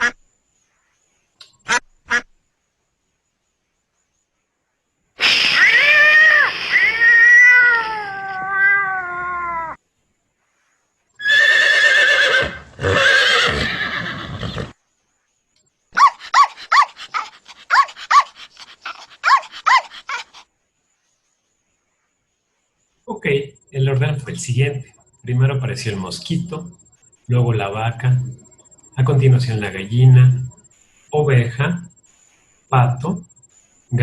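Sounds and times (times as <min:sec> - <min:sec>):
horse neighing: 0:11.2 - 0:14.8
dog barking: 0:16.0 - 0:20.4.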